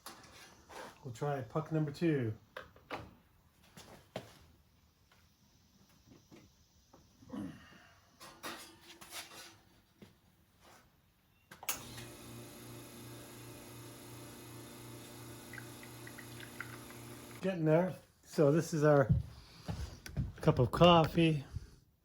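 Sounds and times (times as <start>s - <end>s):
espresso machine pump humming: 11.8s - 17.4s.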